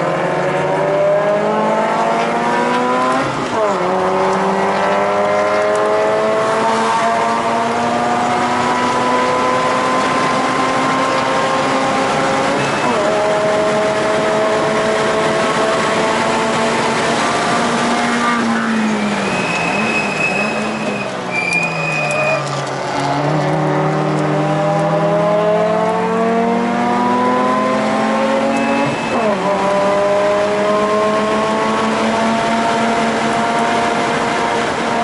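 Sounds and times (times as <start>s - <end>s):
rotary engine revving: 0.0s - 35.0s
tyre squeal: 18.0s - 23.2s, 28.3s - 29.5s.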